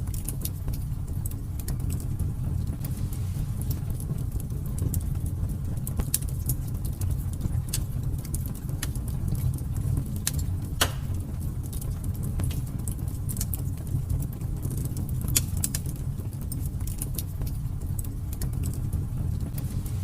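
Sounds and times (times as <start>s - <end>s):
fire crackling in a fireplace: 0.0s - 20.0s.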